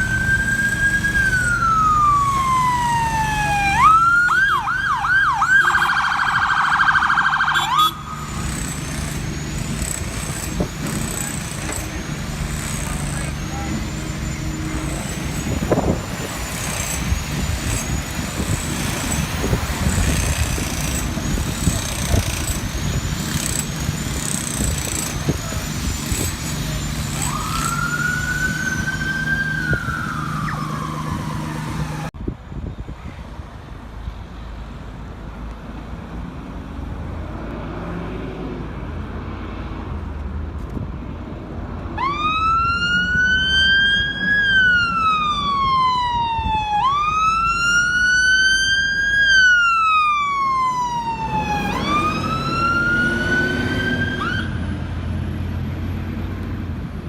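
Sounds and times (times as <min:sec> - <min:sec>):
emergency vehicle sirens: 0:00.0 - 0:24.2, 0:25.1 - 0:32.2, 0:41.8 - 0:55.2
engine running: 0:07.8 - 0:32.1.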